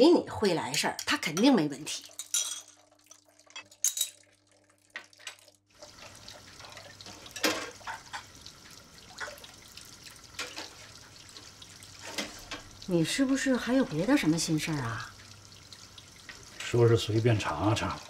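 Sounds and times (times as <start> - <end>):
water running into a sink: 1.3 - 18.0.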